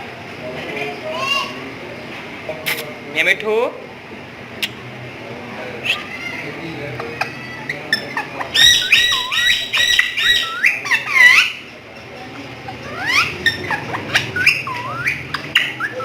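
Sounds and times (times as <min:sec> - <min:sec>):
parrot squawking: 0:05.8 - 0:06.4, 0:07.0 - 0:11.7, 0:12.7 - 0:16.0.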